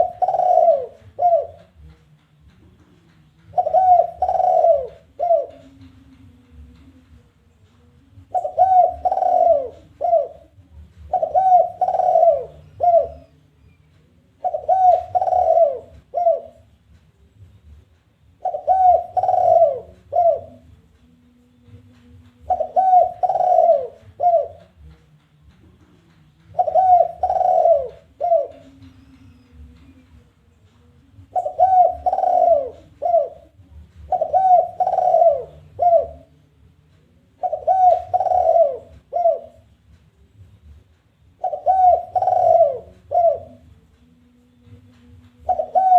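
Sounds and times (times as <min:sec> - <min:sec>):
dove cooing: 0:00.0 - 0:01.9, 0:03.5 - 0:06.7, 0:08.2 - 0:13.4, 0:14.4 - 0:16.8, 0:18.4 - 0:20.7, 0:22.4 - 0:24.9, 0:26.5 - 0:30.0, 0:31.2 - 0:36.4, 0:37.3 - 0:39.8, 0:41.4 - 0:43.7, 0:45.4 - 0:45.9.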